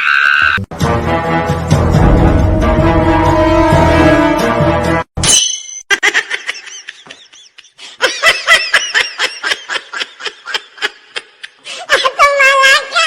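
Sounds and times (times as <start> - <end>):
music: 0.6 - 5.1
person laughing: 5.9 - 12.3.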